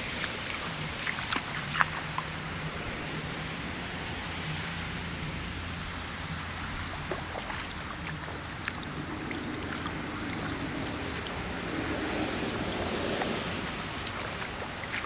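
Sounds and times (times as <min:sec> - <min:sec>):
flowing water rushing: 0:00.0 - 0:15.0
small drip-like ticks: 0:00.1 - 0:02.4, 0:06.8 - 0:15.0.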